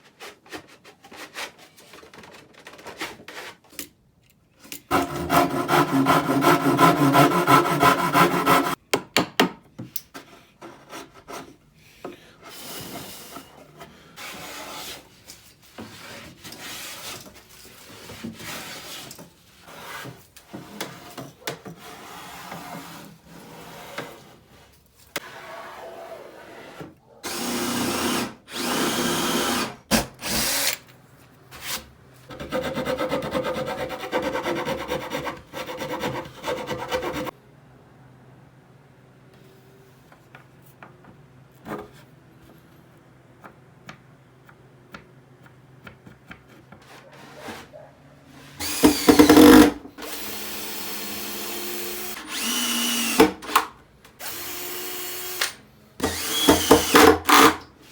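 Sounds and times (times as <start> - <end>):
power drill running: 27.3 - 30.8, 48.6 - 53.6, 54.2 - 57.6.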